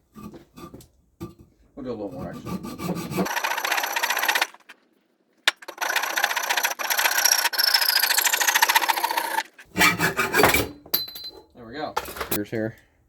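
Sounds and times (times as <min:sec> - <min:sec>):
exhaust pipe being cut rasping: 0:01.8 - 0:04.7, 0:05.7 - 0:10.8.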